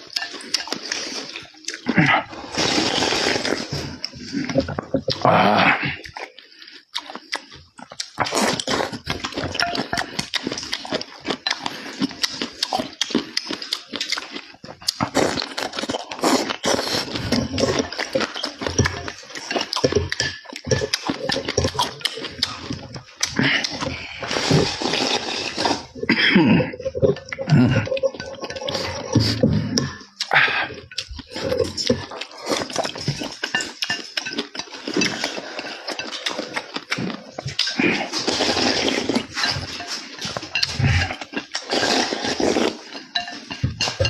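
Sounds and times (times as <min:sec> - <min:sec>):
wet chewing and lip-smacking: 0:00.0 - 0:26.0, 0:26.8 - 0:44.0.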